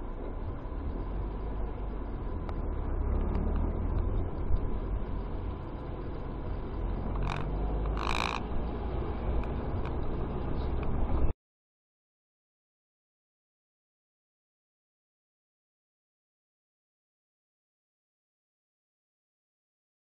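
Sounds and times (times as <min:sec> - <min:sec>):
car road rumble: 0:00.0 - 0:11.3.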